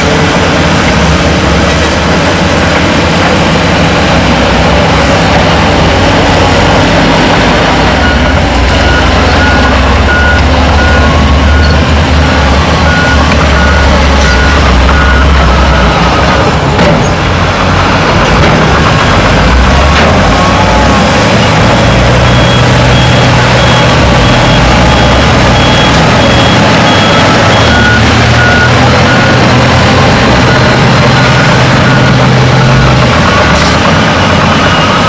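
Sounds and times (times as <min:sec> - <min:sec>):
heavy diesel machines running: 0:00.0 - 0:35.0
reversing alarm beeping: 0:05.7 - 0:16.5, 0:20.3 - 0:35.0.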